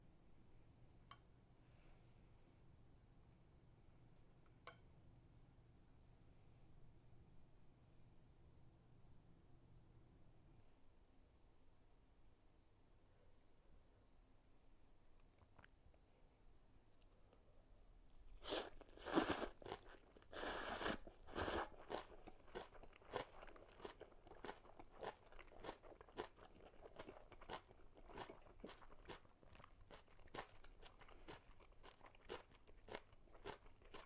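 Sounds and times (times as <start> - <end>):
crunching bites of food: 18.4 - 34.0
wet chewing: 18.4 - 34.0.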